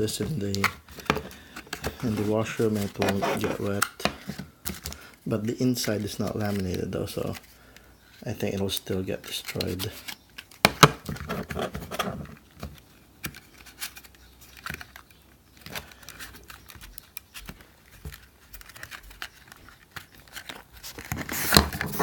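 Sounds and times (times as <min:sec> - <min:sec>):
packaging crinkling: 0:13.3 - 0:22.0
packaging tearing: 0:18.5 - 0:22.0.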